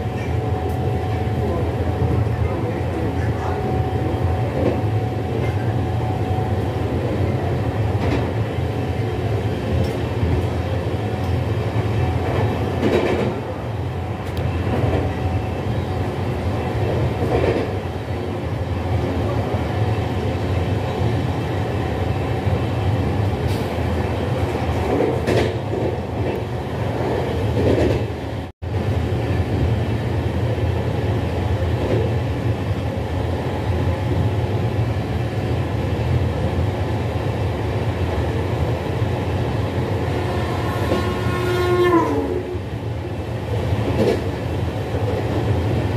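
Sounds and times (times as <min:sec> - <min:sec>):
train coach rumbling on rails: 0:00.0 - 0:45.9.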